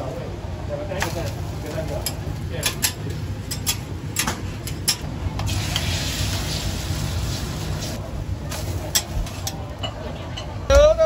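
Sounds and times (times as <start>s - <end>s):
pancake sizzling on a griddle: 5.5s - 8.0s.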